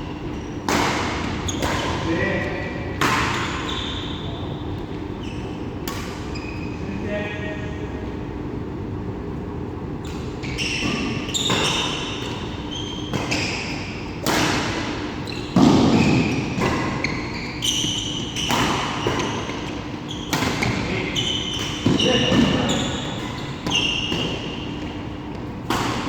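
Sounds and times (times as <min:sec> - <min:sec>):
shoes squeaking on floor: 0:00.0 - 0:00.6, 0:03.3 - 0:07.3, 0:10.0 - 0:14.1, 0:15.2 - 0:25.5
rackets hitting shuttlecock: 0:10.1 - 0:17.1, 0:17.7 - 0:26.0.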